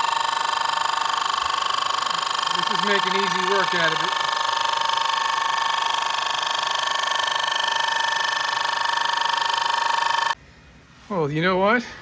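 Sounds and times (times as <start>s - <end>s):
power cutter whining through wood: 0.0s - 10.4s.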